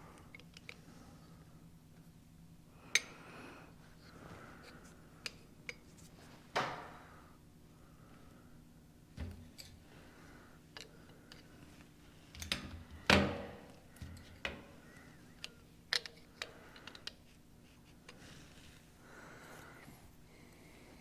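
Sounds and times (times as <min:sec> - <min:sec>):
tools clicking and knocking: 0:15.4 - 0:17.2.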